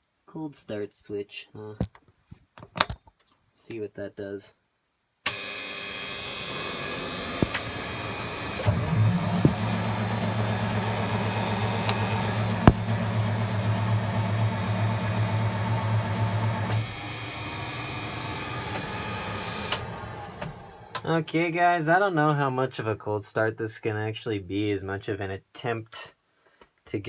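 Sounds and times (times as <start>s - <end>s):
diesel engine starter cranking: 5.3s - 21.1s
deep steady drone: 7.4s - 16.7s.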